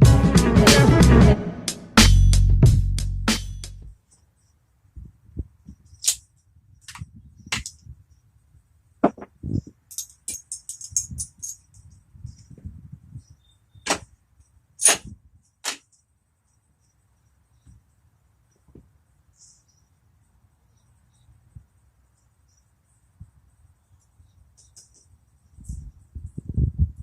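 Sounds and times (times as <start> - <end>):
metal jangling rattle: 9.8 - 12.0
metallic clicks and clinks: 9.8 - 12.0.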